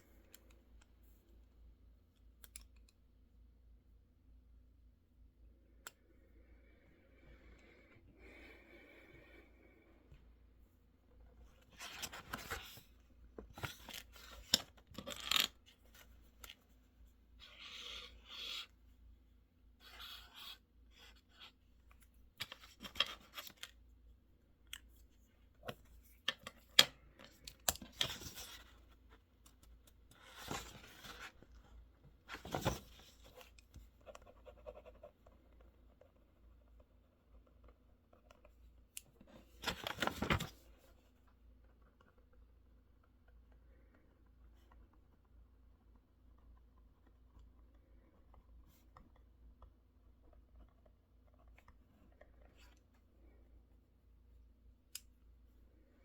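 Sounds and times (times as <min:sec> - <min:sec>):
paper rustling and scratching: 0:32.3 - 0:34.9, 0:39.4 - 0:40.7.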